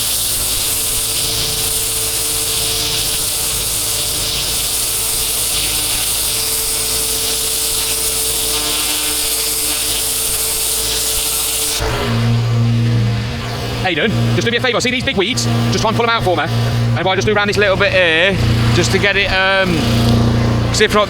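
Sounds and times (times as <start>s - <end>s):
machine hum: 0.0s - 21.0s
water jet hissing: 0.0s - 21.0s.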